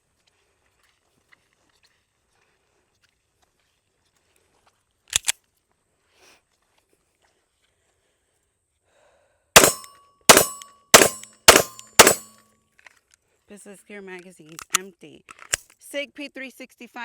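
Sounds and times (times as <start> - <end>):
pistol shots: 9.6 - 12.3
ringing metal clang: 9.6 - 12.3.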